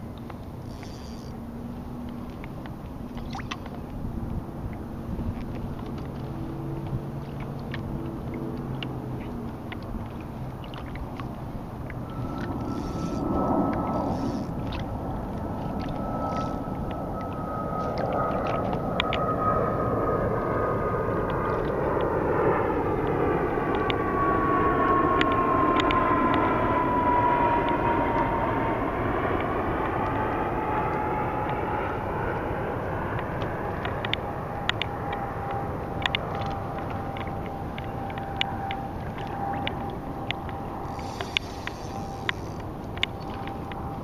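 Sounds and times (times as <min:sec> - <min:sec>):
airplane passing overhead: 0:00.0 - 0:44.0
falling jet whine: 0:11.6 - 0:44.0.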